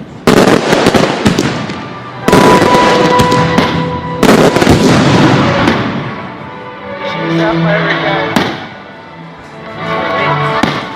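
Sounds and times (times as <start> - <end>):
fireworks booming: 0.0 - 6.4, 8.3 - 8.8
fireworks crackling: 0.0 - 6.6.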